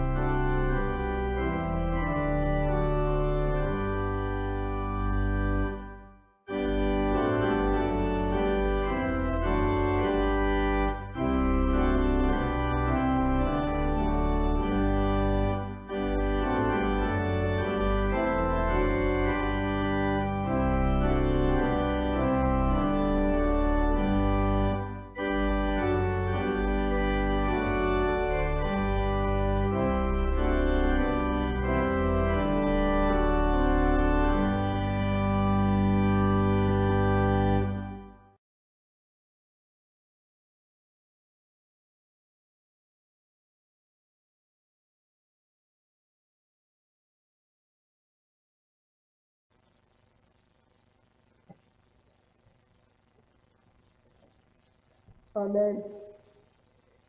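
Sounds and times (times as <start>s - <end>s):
organ chords: 0.0s - 38.4s.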